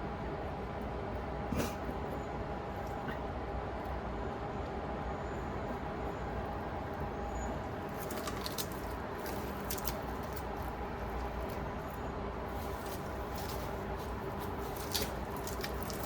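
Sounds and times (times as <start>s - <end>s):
steady low hum: 0.0s - 16.0s
scratches and clicks on plastic: 8.0s - 11.6s, 12.6s - 16.0s.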